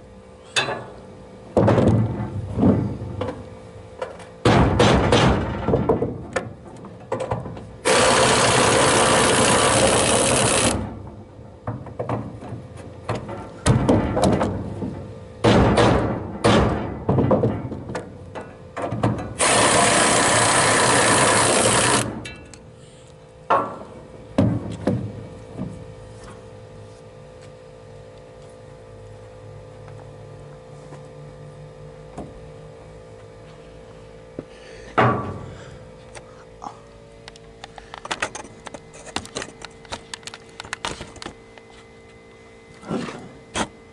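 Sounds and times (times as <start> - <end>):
low steady hum: 0.0 - 43.9
knocks and clatter: 4.0 - 7.7, 11.6 - 19.4
power tool running: 7.8 - 11.0, 19.4 - 22.3.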